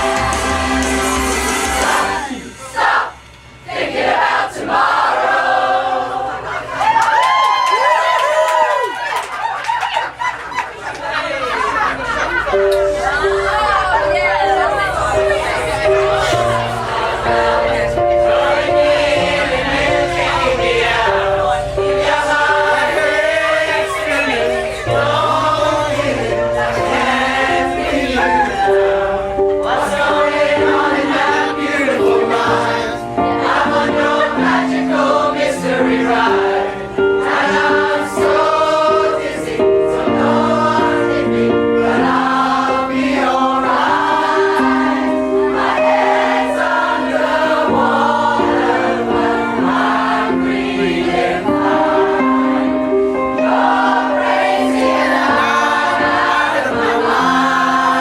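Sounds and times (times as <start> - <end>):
choir singing in harmony: 0.0 - 6.8, 11.1 - 58.0.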